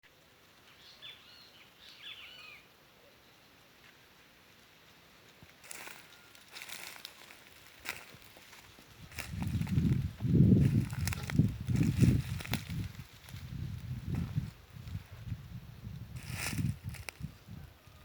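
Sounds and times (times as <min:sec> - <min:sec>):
bird chirping: 0:00.7 - 0:03.4.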